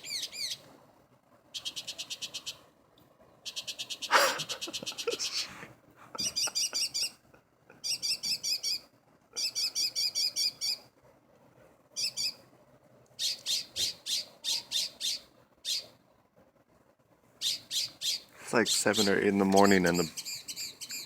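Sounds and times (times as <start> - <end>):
songbird warbling: 0.0 - 0.7, 1.5 - 2.6, 3.4 - 5.6, 6.2 - 7.2, 7.8 - 10.9, 12.0 - 12.4, 13.2 - 16.0, 17.4 - 21.0.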